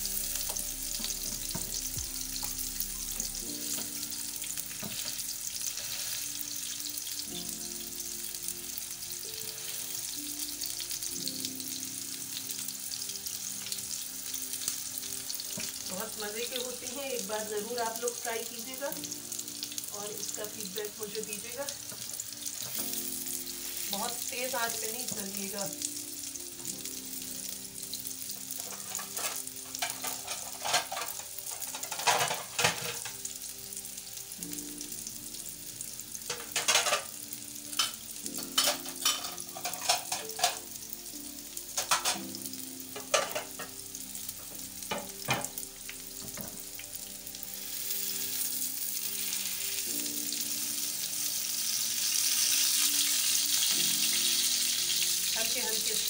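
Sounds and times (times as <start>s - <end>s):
patties sizzling in oil: 0.0s - 56.0s.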